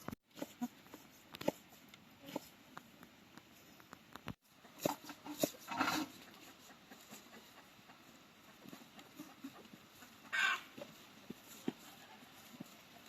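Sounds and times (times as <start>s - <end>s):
chickens clucking softly: 4.4s - 13.0s.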